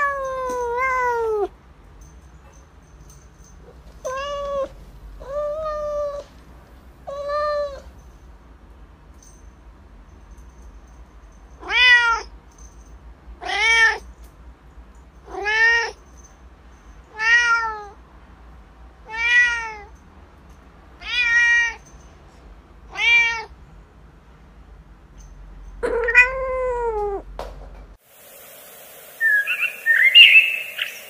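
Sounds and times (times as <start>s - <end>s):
cat meowing: 0.0s - 1.5s, 4.0s - 6.4s, 7.0s - 8.0s, 11.6s - 12.3s, 13.4s - 14.0s, 15.2s - 16.0s, 17.1s - 18.0s, 19.0s - 20.0s, 21.0s - 21.9s, 22.9s - 23.6s, 25.8s - 27.3s.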